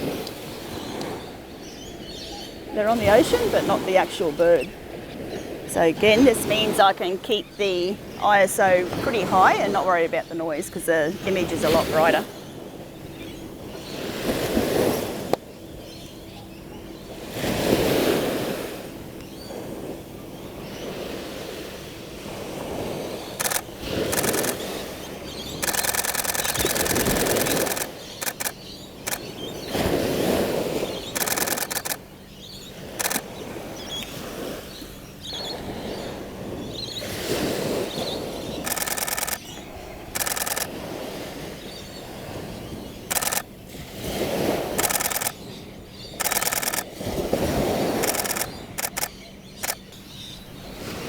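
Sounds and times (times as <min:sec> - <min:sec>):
waves breaking on shore: 0:00.0 - 0:51.0
camera shutter bursts: 0:23.3 - 0:24.8, 0:25.5 - 0:29.3, 0:31.0 - 0:32.1, 0:33.0 - 0:33.3, 0:38.6 - 0:40.7, 0:43.1 - 0:43.5, 0:44.7 - 0:45.4, 0:46.2 - 0:47.0, 0:48.0 - 0:49.9.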